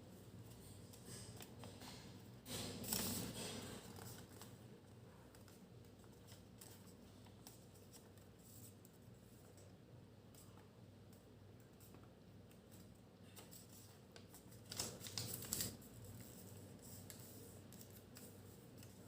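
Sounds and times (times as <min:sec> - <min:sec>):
paper rustling and folding: 0:00.5 - 0:04.6, 0:05.2 - 0:09.7, 0:11.7 - 0:19.0
paper crinkle: 0:12.6 - 0:19.0.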